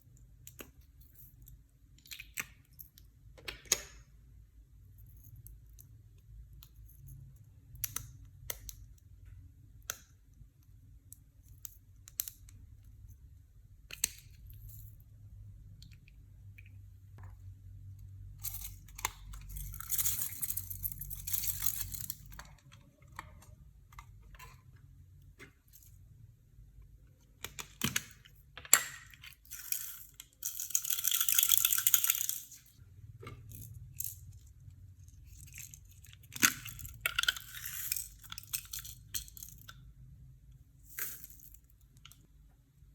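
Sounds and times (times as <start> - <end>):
small objects clinking: 18.4 - 23.6, 28.6 - 32.8, 35.1 - 39.7.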